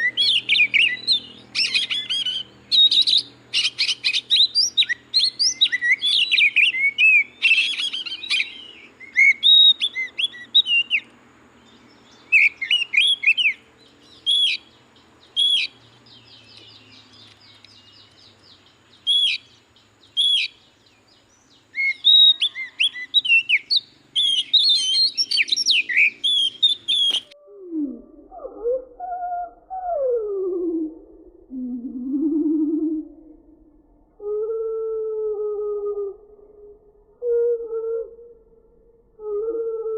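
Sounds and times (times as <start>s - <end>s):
bird whistling and chattering: 0.0s - 11.0s, 12.2s - 13.6s, 14.2s - 14.7s, 15.4s - 15.8s, 19.1s - 19.5s, 20.2s - 20.6s, 21.8s - 27.4s.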